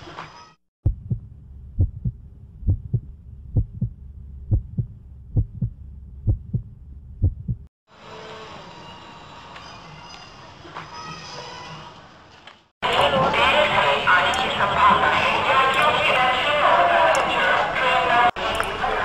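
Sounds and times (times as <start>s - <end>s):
heartbeat-like double thumps: 0.8s - 7.7s
low hum: 0.8s - 7.7s.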